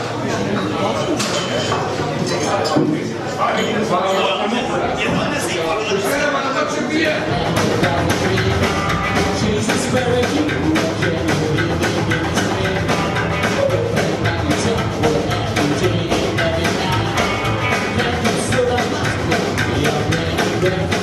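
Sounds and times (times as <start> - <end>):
bass guitar: 7.2 - 21.0
drums playing steady beat: 7.2 - 21.0
electric guitar: 7.3 - 21.0.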